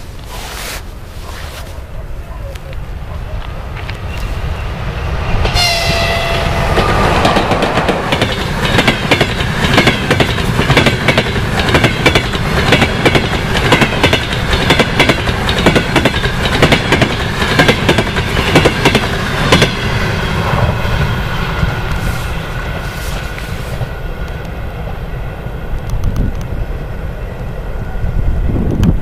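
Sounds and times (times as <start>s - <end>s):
train horn blast: 5.5s - 7.7s.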